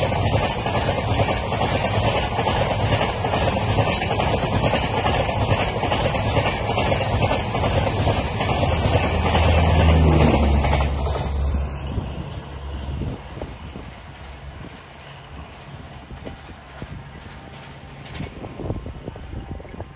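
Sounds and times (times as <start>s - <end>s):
train coaches passing: 0.0s - 19.9s.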